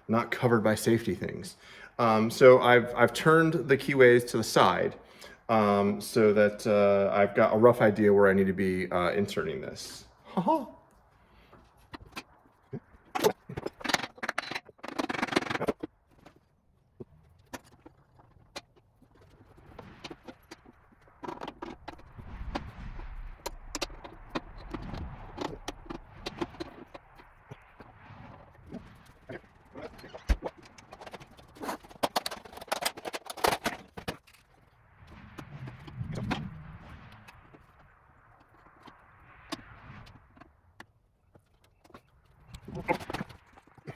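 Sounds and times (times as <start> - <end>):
low rumble: 19.6 - 32.0, 34.1 - 43.9
metal parts clinking and scraping: 29.8 - 34.6.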